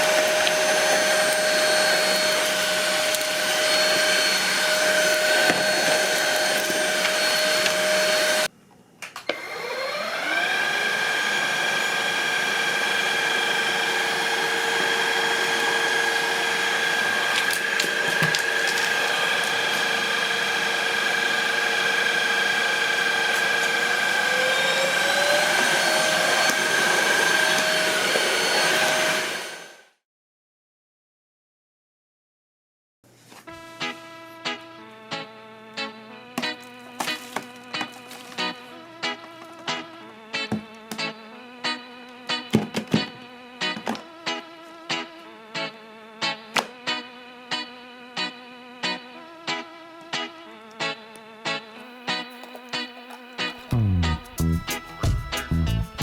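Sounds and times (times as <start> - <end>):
stick vacuum motor whine: 0.0 - 8.5, 9.2 - 29.9, 33.5 - 45.0.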